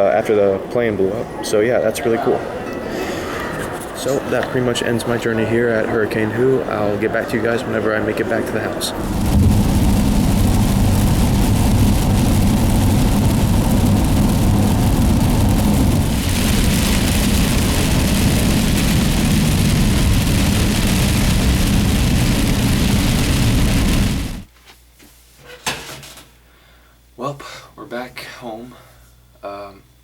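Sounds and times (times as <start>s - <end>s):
road noise inside car: 8.3s - 24.5s
low engine hum: 9.0s - 24.4s
heavy rain on car: 9.0s - 24.5s.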